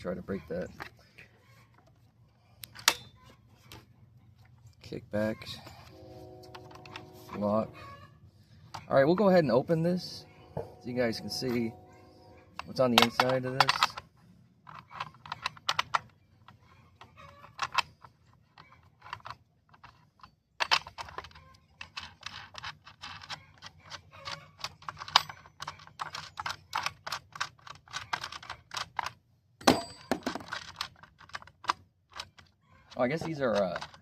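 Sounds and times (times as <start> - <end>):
plastic and metal parts clicking: 12.5 - 29.2, 29.8 - 34.0.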